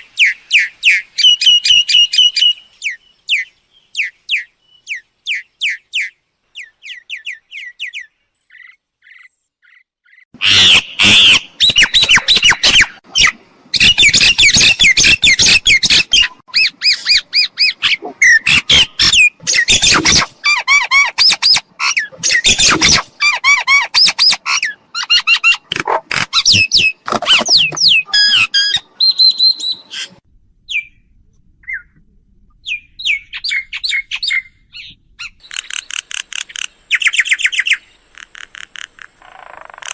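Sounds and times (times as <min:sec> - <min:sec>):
myna calling: 0:10.4 - 0:30.1.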